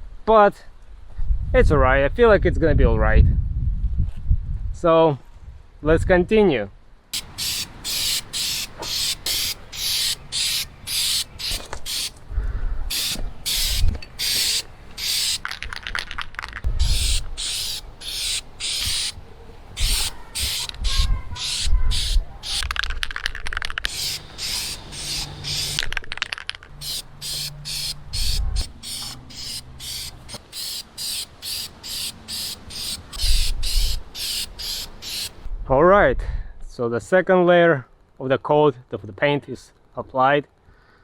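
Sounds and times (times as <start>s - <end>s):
aerosol can spraying hissing bursts: 7.2s - 12.2s, 12.9s - 15.5s, 16.7s - 19.2s, 19.8s - 22.7s, 23.9s - 25.8s, 26.8s - 35.4s.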